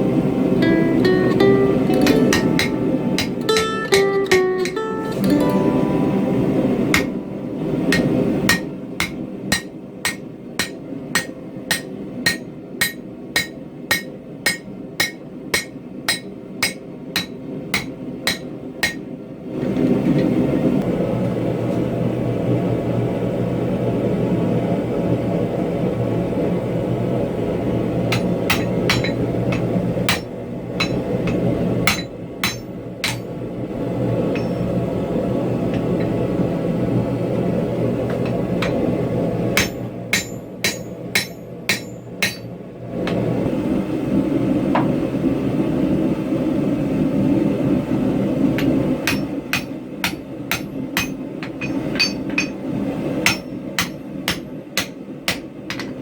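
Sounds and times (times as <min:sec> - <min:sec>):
hammer striking steel on anvil: 0:01.9 - 0:19.0, 0:28.1 - 0:33.3, 0:34.3 - 0:34.8, 0:38.1 - 0:38.9, 0:39.6 - 0:42.5, 0:48.6 - 0:52.6, 0:53.2 - 0:56.0.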